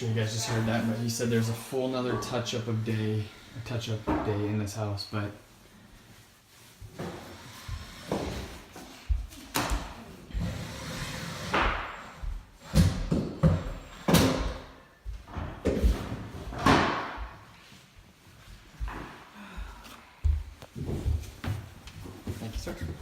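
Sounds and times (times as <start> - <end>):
knocks and thumps in a room: 6.8 - 23.0.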